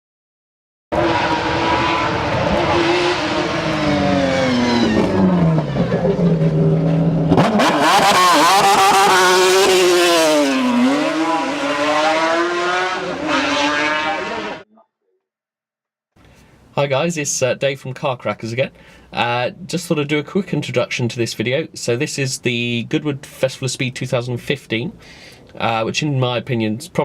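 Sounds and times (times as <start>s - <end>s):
racing car engine revving: 0.9s - 14.6s.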